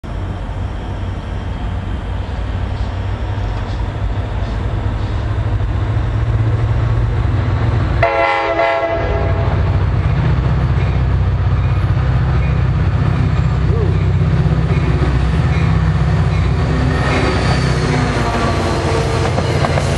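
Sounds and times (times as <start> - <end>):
diesel locomotive engine rumble: 0.0 - 19.9
multi-tone train horn blast: 8.0 - 9.8, 18.0 - 19.7.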